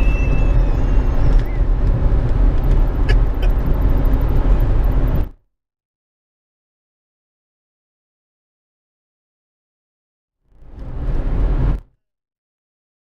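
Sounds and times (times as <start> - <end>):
vehicle road and engine rumble: 0.0 - 5.4, 10.5 - 11.9.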